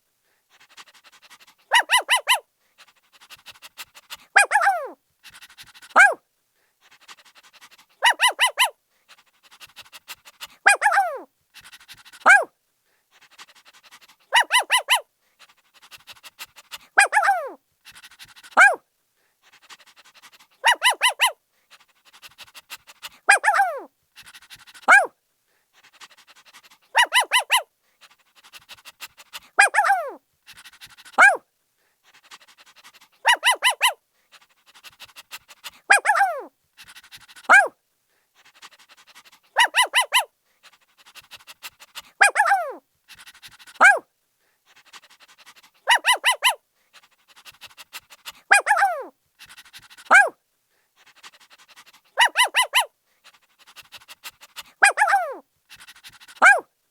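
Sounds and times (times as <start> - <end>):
puppy yipping and yelping: 0.8 - 2.5, 3.7 - 6.2, 8.0 - 8.8, 9.5 - 12.5, 14.3 - 15.1, 16.0 - 18.8, 19.6 - 21.4, 22.8 - 25.1, 26.4 - 27.7, 28.4 - 31.4, 32.3 - 34.0, 34.8 - 37.7, 38.6 - 40.3, 41.1 - 44.1, 45.0 - 46.6, 47.4 - 50.4, 51.3 - 52.9, 53.7 - 56.7.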